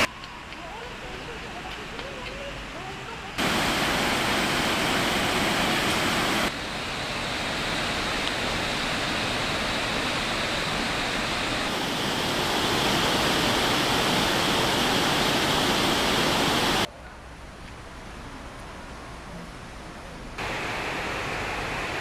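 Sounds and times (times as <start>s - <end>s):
waterfall crashing into pool: 3.4s - 16.9s, 20.4s - 22.0s.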